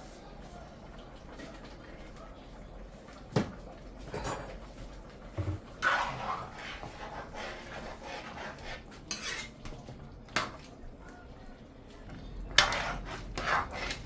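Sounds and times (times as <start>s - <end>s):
metal utensils clinking on a pot: 4.0s - 4.8s, 9.0s - 10.7s, 12.2s - 14.0s.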